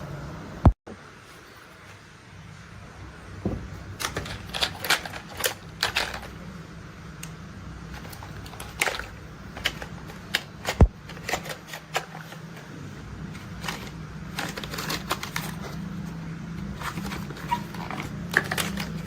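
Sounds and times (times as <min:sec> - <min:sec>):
plastic toy parts clicking: 0:04.0 - 0:06.4, 0:08.0 - 0:12.4.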